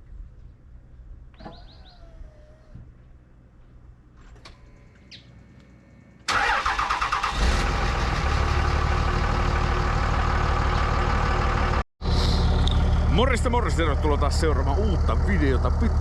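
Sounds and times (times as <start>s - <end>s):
engine cranking and idling: 6.2s - 16.0s.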